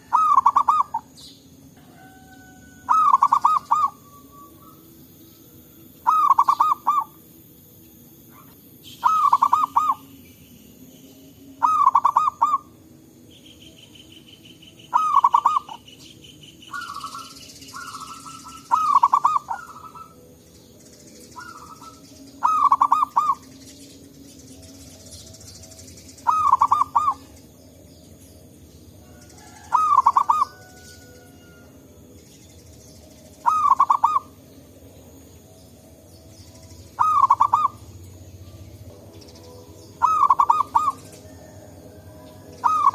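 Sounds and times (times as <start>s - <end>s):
dove cooing: 0.0s - 4.8s, 6.0s - 7.2s, 8.3s - 10.1s, 11.6s - 12.8s, 14.9s - 15.9s, 16.7s - 20.3s, 21.4s - 23.5s, 26.2s - 27.4s, 29.1s - 31.6s, 33.4s - 34.4s, 37.0s - 38.0s, 40.0s - 42.9s
high pulsing trill: 3.0s - 28.9s, 31.8s - 41.3s.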